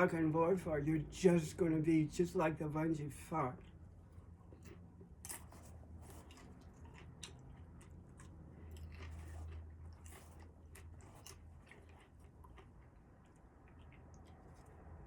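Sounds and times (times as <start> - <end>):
low steady hum: 0.0 - 15.0
person chewing crunchy food: 3.6 - 15.0.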